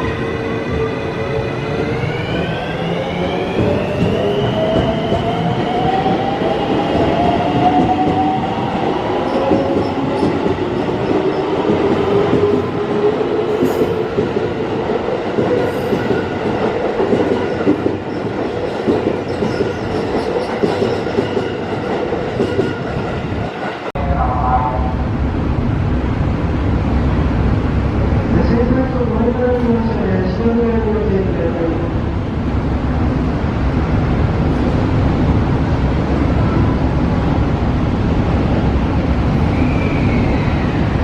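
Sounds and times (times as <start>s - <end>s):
train wheels rumbling on rails: 0.0s - 24.3s.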